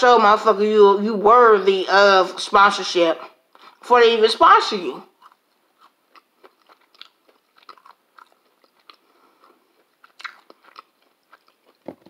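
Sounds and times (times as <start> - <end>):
person chewing pizza: 5.1 - 12.0.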